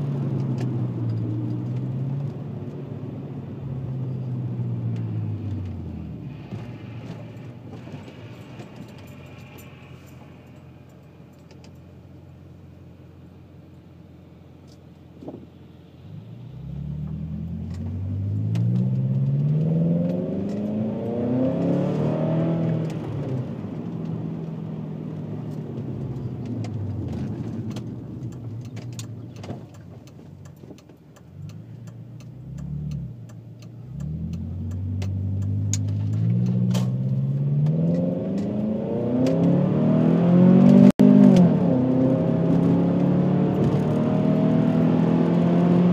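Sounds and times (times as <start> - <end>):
car engine revving through gears: 16.4 - 30.6, 31.2 - 45.9.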